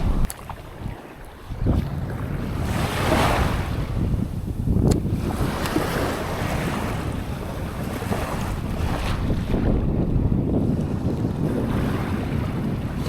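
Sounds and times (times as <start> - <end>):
surf breaking on beach: 0.0 - 13.0
wind buffeting microphone: 0.0 - 13.0
sharp click: 4.8 - 5.0.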